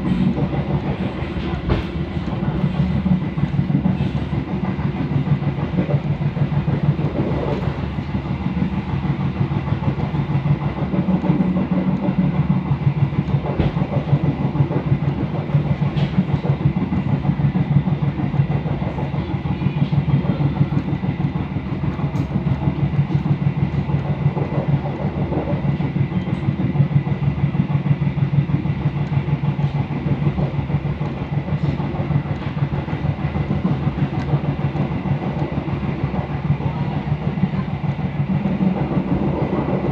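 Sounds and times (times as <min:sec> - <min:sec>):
sharp knock of train wheels: 0:00.0 - 0:08.0, 0:08.6 - 0:17.6
train wheels rumbling on rail: 0:00.0 - 0:39.9.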